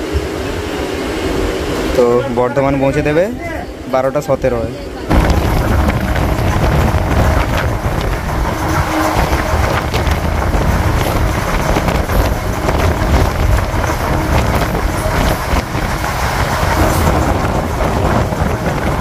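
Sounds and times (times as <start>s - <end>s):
train wheels rumbling on rails: 5.0s - 19.0s
wind buffeting microphone: 5.1s - 19.0s.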